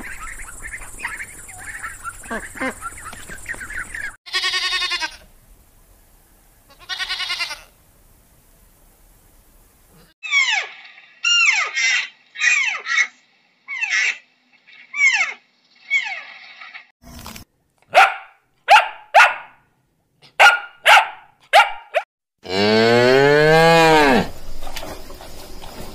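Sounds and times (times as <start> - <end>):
animal chattering calls: 0.0 - 4.2, 10.2 - 16.9
goat bleating: 4.3 - 5.3, 6.7 - 7.8
short falling animal cries: 10.2 - 13.1.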